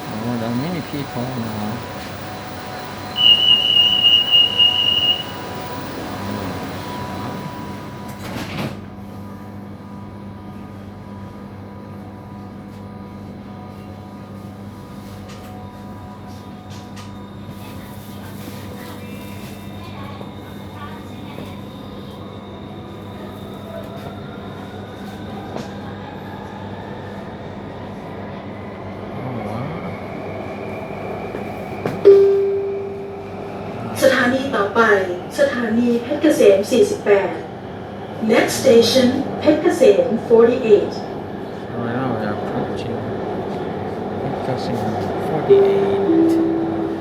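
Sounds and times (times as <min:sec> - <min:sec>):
faint rising whine: 0:00.0 - 0:08.1
train hum and rolling noise: 0:00.0 - 0:47.0
door warning beep: 0:02.9 - 0:08.3, 0:32.0 - 0:33.3, 0:45.5 - 0:47.0
sliding doors closing: 0:04.0 - 0:09.0.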